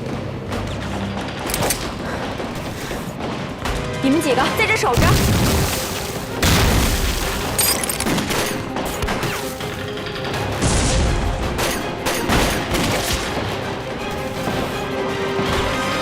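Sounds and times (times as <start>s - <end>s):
film score music: 0.0s - 16.0s
scattered gunshots: 5.0s - 14.8s.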